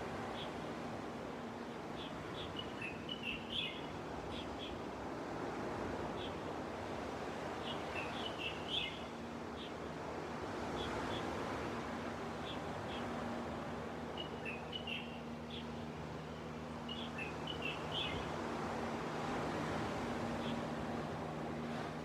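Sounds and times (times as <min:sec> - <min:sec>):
small birds chirping: 0:14.2 - 0:15.8.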